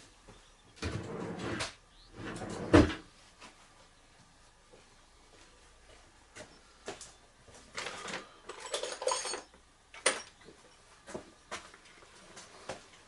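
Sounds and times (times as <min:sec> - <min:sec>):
metal bolts clinking: 0:08.0 - 0:10.4.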